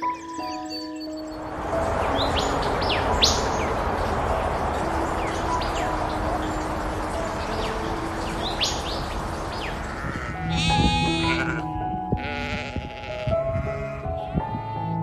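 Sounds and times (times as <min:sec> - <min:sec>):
background music: 0:00.0 - 0:15.0
noisy ambience: 0:01.3 - 0:12.2
animal bleating calls: 0:09.6 - 0:15.0.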